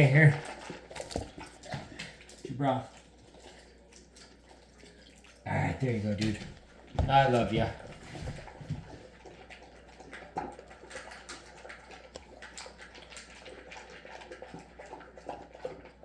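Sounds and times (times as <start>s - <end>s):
dog lapping and chewing: 0.0s - 16.0s.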